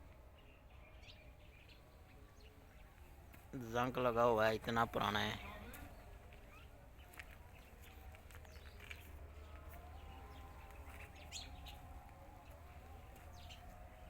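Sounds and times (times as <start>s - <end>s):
birds chirping: 0.0s - 14.0s
low outdoor rumble: 0.0s - 14.0s.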